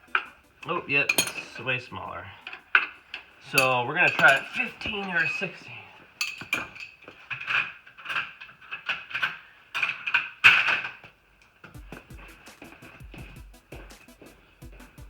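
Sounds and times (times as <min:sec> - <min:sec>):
background music with steady beat: 0:00.0 - 0:06.8, 0:11.6 - 0:15.0
metal sockets and tools clinking: 0:01.0 - 0:01.7, 0:02.4 - 0:11.1.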